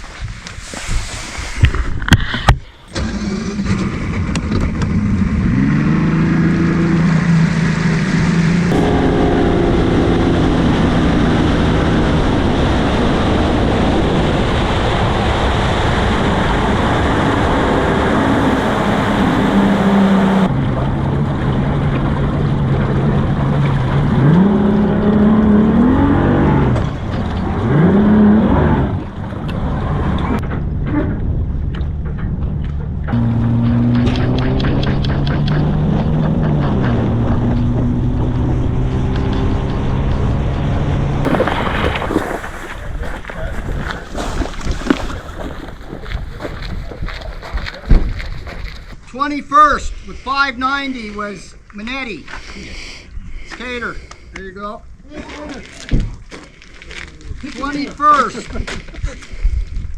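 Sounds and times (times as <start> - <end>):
wind and water noise: 0.0 - 59.9
outboard motor running: 2.9 - 30.4.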